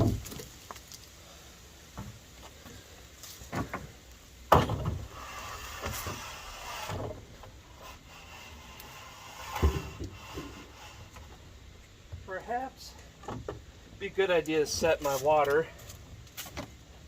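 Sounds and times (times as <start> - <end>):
wooden clunk on deck: 4.5 - 5.0.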